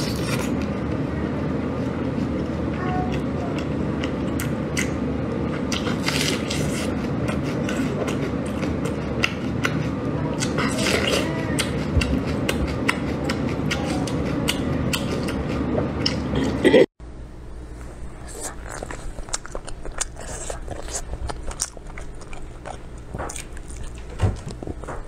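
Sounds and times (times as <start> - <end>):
wet chewing: 3.1 - 16.6, 18.1 - 25.0
lip smacks and mouth clicks: 18.3 - 24.8.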